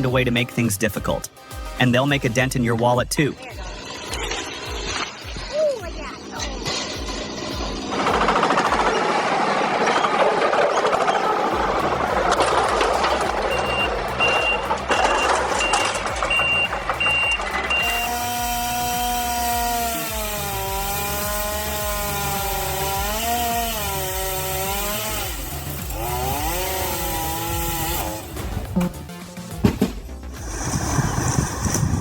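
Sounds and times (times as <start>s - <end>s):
rough machinery noise: 3.4s - 32.0s
motor running steadily: 3.5s - 9.4s, 11.6s - 28.4s
reversing alarm beeping: 13.5s - 18.1s.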